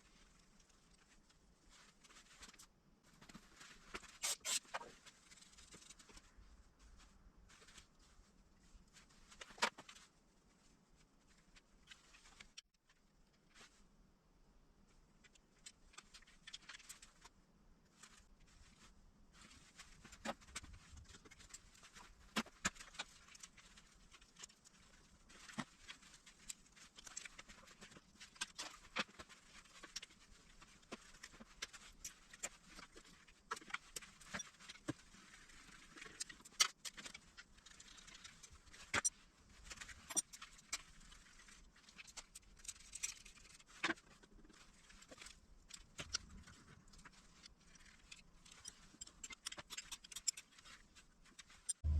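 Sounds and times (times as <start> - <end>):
hand tools clicking and scraping: 48.0 - 50.6.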